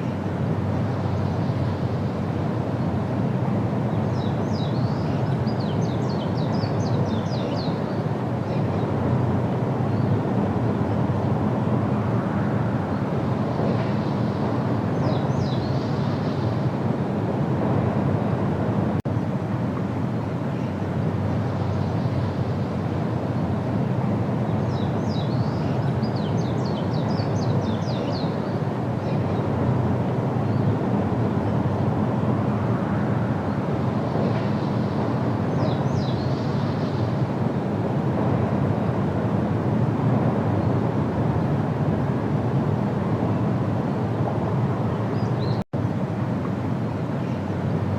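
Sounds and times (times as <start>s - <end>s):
low outdoor rumble: 0.0s - 47.9s
bird calling: 24.7s - 29.4s.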